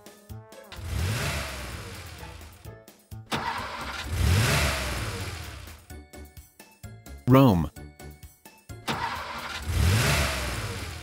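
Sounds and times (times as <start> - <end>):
light background music: 0.0 - 9.6
cartoon car engine revving: 0.8 - 2.5, 3.4 - 5.7, 8.9 - 11.0.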